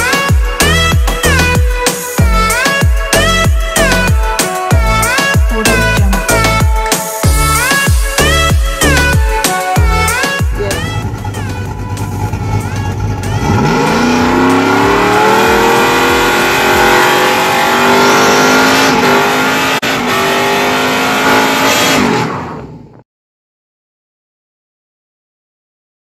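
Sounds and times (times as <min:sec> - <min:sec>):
truck engine revving: 0:00.0 - 0:22.9.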